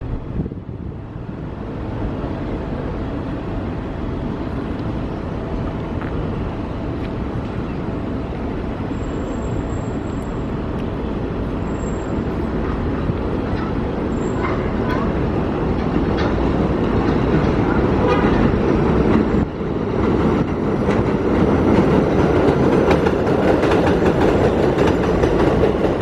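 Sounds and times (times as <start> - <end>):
subway train rumble: 0.0 - 26.0
high-pitched train squeals: 8.8 - 10.7, 11.5 - 16.4.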